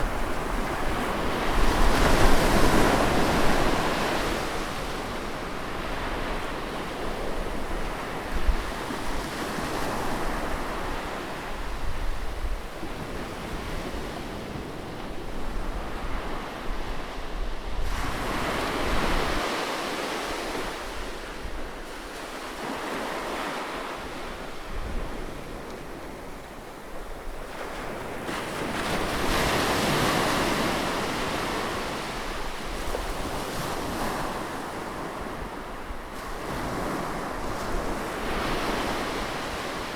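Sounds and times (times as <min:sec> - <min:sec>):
sea waves breaking on shore: 0:00.0 - 0:11.5
wind rumble on microphone: 0:00.0 - 0:19.5.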